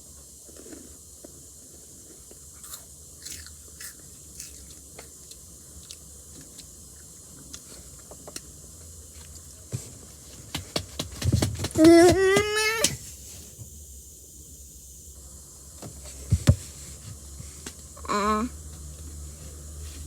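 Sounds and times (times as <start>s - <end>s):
person chewing crunchy snack: 1.9s - 8.1s.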